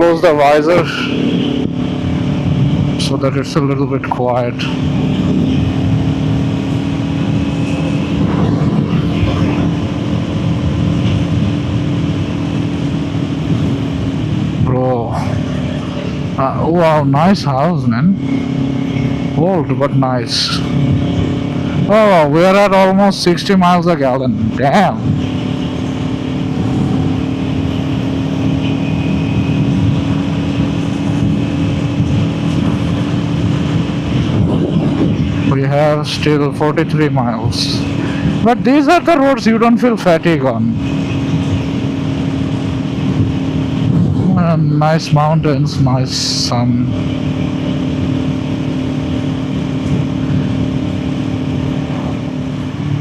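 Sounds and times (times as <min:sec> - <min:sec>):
motorcycle engine cruising: 0:00.0 - 0:53.0
wind and road noise: 0:00.0 - 0:53.0
wind rushing: 0:04.8 - 0:16.3, 0:24.9 - 0:35.5.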